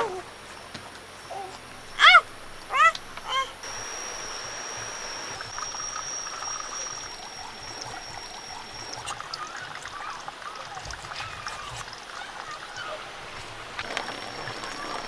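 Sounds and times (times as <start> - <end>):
water trickling: 0.2 - 15.0
high steady whine: 1.7 - 10.1, 13.8 - 15.0.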